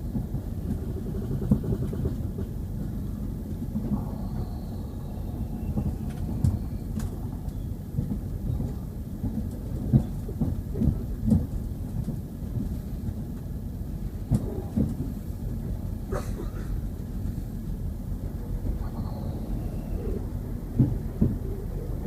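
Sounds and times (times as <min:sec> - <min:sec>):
diesel train engine rumble: 0:00.0 - 0:22.0.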